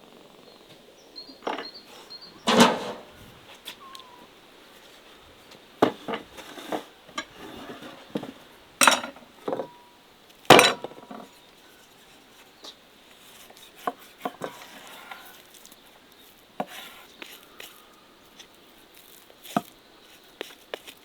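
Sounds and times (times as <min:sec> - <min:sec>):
dishes and utensils clinking: 0:01.4 - 0:01.7, 0:02.4 - 0:03.2, 0:05.8 - 0:09.9, 0:10.5 - 0:11.2.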